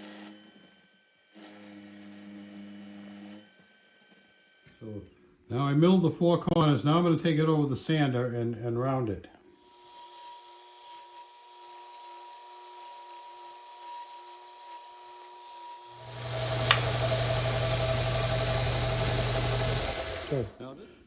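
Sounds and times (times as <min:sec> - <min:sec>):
power sander grinding metal: 0:09.6 - 0:20.6.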